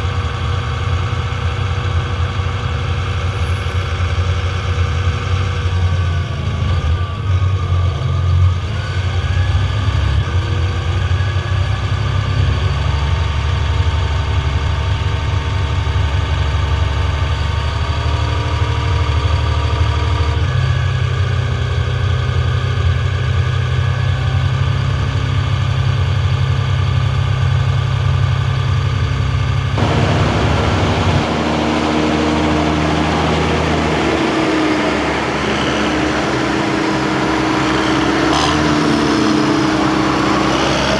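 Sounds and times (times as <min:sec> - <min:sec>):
tractor diesel engine running: 0:29.8 - 0:40.9.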